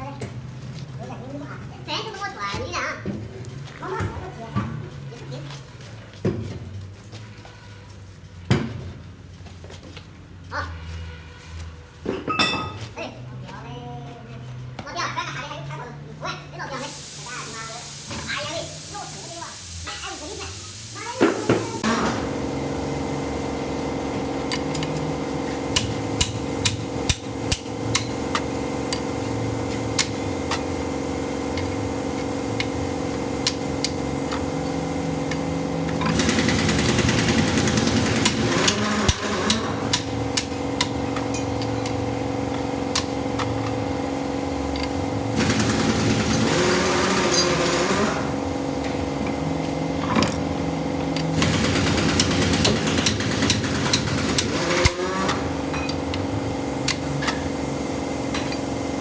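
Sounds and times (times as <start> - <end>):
engine hum: 16.8 - 59.0
rough mechanical noise: 16.8 - 59.0.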